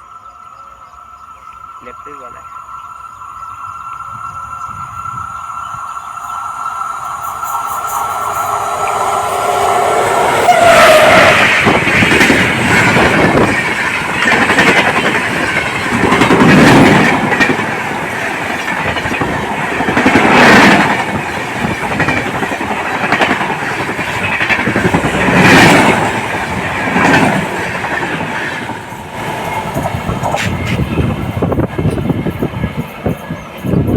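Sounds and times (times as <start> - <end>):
train wheels clattering on rails: 4.7 - 33.9
train horn: 7.2 - 11.7.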